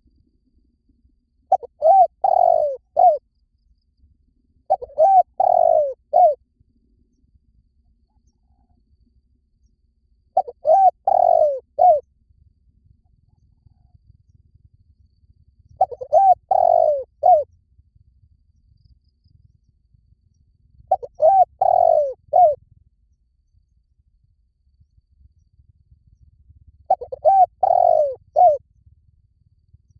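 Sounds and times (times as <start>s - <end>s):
dove cooing: 1.5s - 3.2s, 4.7s - 6.4s, 10.4s - 12.0s, 15.8s - 17.5s, 20.9s - 22.6s, 26.9s - 28.6s.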